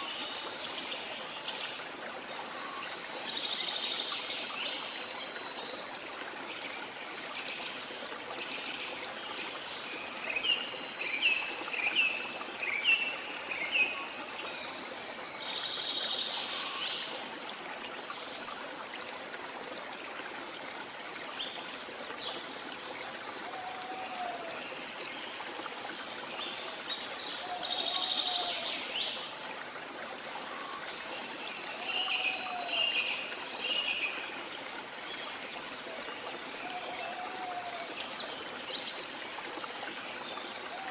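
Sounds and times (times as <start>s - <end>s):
birds singing: 26.5s - 29.2s.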